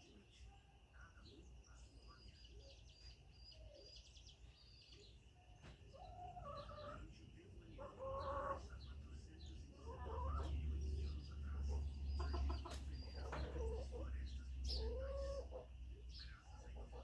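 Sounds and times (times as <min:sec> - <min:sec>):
chicken chirps: 0:05.8 - 0:08.9, 0:09.7 - 0:14.1, 0:14.7 - 0:15.7.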